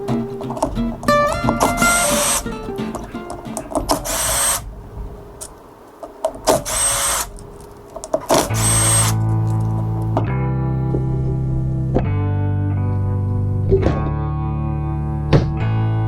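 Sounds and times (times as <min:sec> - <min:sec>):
music with held chords: 0:00.0 - 0:03.8, 0:08.7 - 0:16.0
power drill whining: 0:01.9 - 0:02.5, 0:03.9 - 0:04.6, 0:06.5 - 0:07.3, 0:08.3 - 0:09.2.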